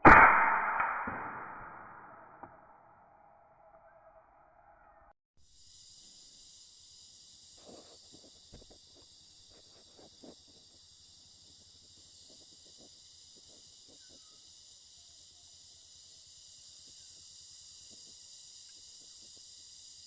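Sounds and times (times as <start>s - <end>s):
high-pitched insect chorus: 5.5s - 20.0s.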